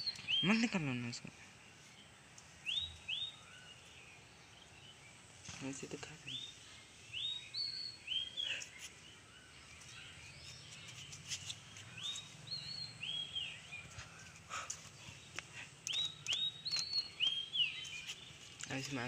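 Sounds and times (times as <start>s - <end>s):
bird calling: 5.5s - 19.0s.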